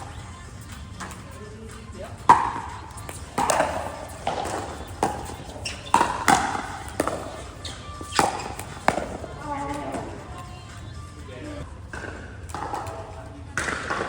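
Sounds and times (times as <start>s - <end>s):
paddles striking plastic ball: 2.2s - 10.1s, 13.6s - 14.0s.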